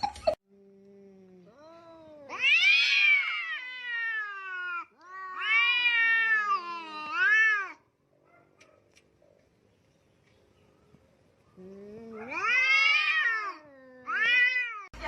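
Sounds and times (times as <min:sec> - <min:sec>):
cat yowling: 0:01.6 - 0:07.9, 0:12.0 - 0:14.9.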